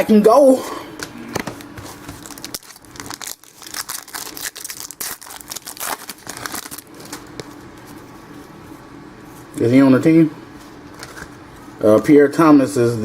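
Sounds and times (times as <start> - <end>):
wrapper tearing and crinkling: 2.0 - 7.6.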